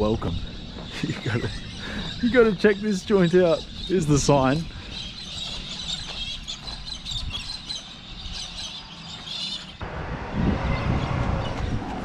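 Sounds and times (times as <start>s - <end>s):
birds chirping and twittering: 0.0s - 12.0s.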